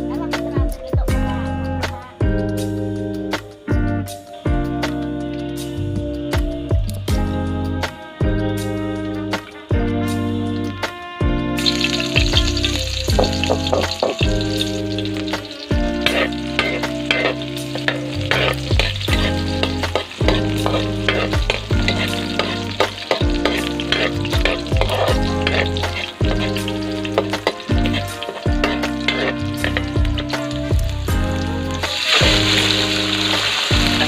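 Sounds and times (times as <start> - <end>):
background music with bass: 0.0 - 34.0
chicken sizzling in a pan: 11.6 - 34.0.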